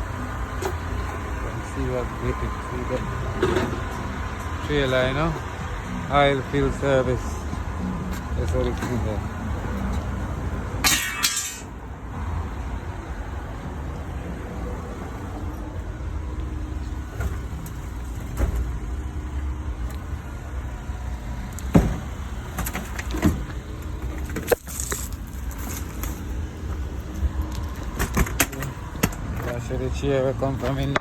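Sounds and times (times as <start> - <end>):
engine running: 0.0 - 31.0
sharp knocks and clanks: 10.8 - 11.7.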